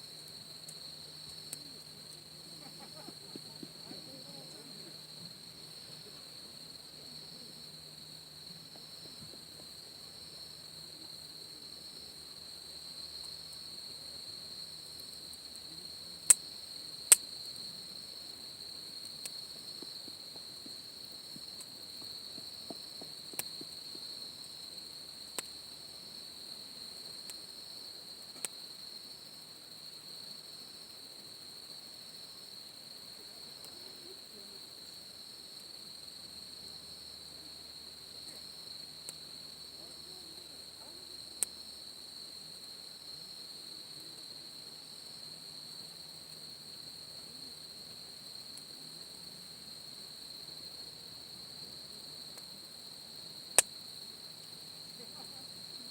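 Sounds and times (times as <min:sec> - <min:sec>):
night insects trilling: 0:00.0 - 0:55.9
campfire pops: 0:16.2 - 0:17.6, 0:19.0 - 0:24.6, 0:25.3 - 0:25.6, 0:28.3 - 0:28.6, 0:53.5 - 0:53.8.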